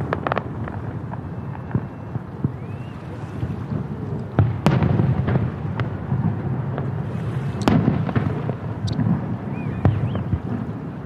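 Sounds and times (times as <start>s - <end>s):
light firework pops: 0.0s - 2.9s, 7.5s - 10.6s
low rumbling echo: 0.0s - 11.0s
fireworks shells bursting: 6.8s - 10.7s.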